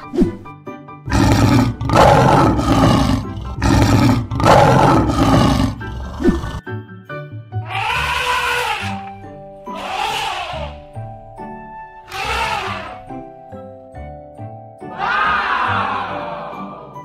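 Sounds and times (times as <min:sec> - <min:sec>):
background music: 0:00.0 - 0:17.0
lion roar: 0:01.1 - 0:06.6.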